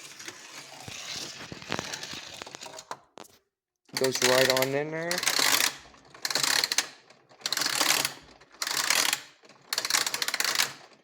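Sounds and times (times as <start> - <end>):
plastic ratchet clicking: 3.9 - 11.0.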